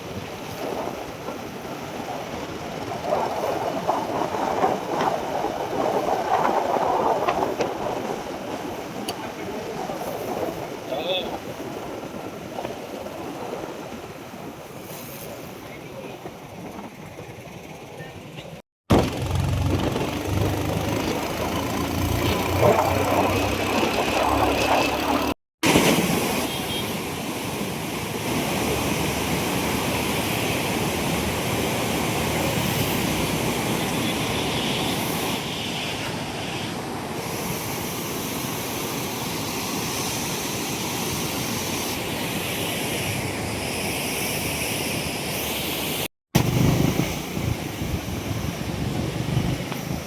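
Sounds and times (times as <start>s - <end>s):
vehicle engine: 16.9s - 25.4s, 46.4s - 50.0s
floodwater rushing: 18.9s - 35.5s.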